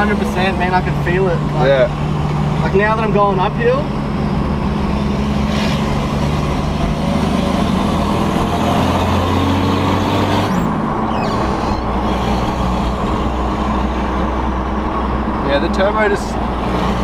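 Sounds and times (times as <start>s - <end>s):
diesel engine pulling uphill: 0.0s - 17.0s.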